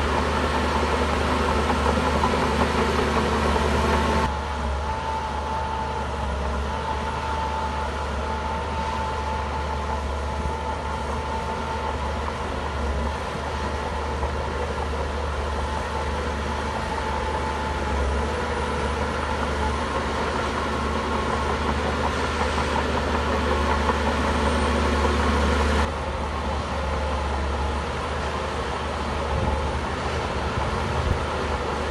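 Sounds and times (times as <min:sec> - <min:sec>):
bulldozer diesel engine droning: 0:00.0 - 0:31.9.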